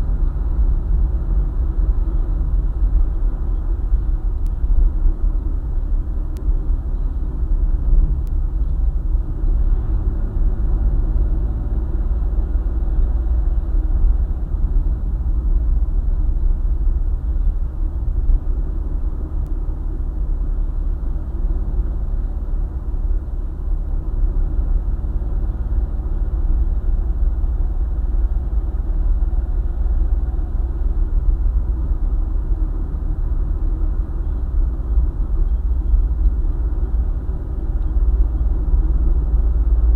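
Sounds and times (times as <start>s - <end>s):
car engine humming: 0.0s - 39.9s
road rumble: 0.0s - 39.9s.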